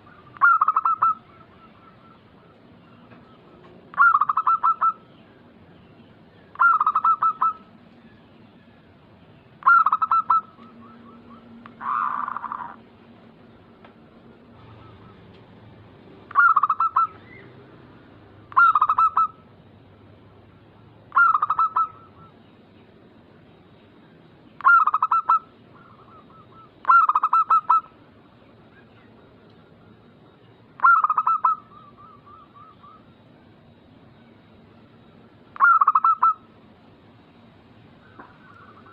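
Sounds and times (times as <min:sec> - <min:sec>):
dove cooing: 0:00.0 - 0:05.1, 0:06.5 - 0:07.8, 0:09.6 - 0:12.8, 0:14.4 - 0:17.6, 0:18.3 - 0:19.5, 0:21.1 - 0:22.4, 0:24.6 - 0:28.0, 0:30.8 - 0:33.2, 0:35.6 - 0:36.5, 0:38.0 - 0:38.9.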